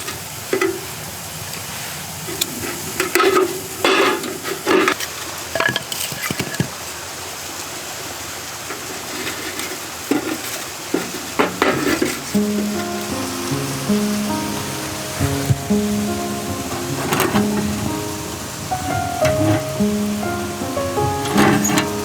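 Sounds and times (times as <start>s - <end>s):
utensil scraping a pan: 2.4s - 6.7s, 9.0s - 22.0s
food sizzling in a pan: 8.7s - 22.0s.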